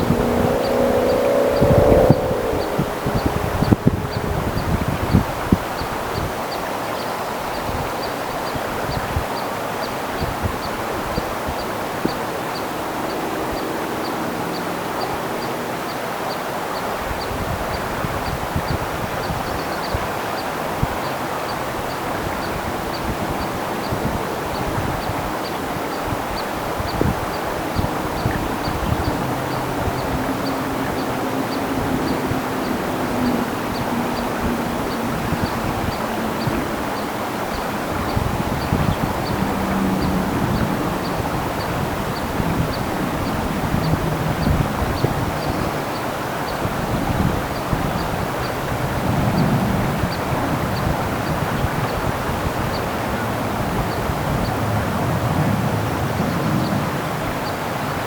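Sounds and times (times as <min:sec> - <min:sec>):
creek water flowing: 0:00.0 - 0:58.0
wind rumbling on microphone: 0:00.0 - 0:58.0.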